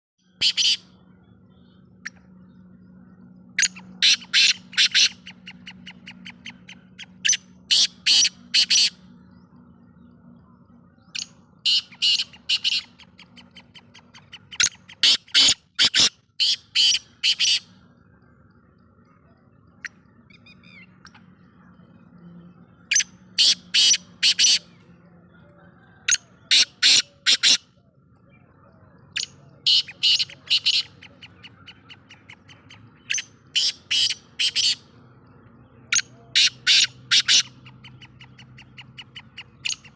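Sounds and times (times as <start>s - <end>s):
bird calling harsh phrases: 0.3s - 0.9s, 3.6s - 9.0s, 11.2s - 17.8s, 22.9s - 24.7s, 26.5s - 27.6s, 29.1s - 34.9s, 35.9s - 39.9s.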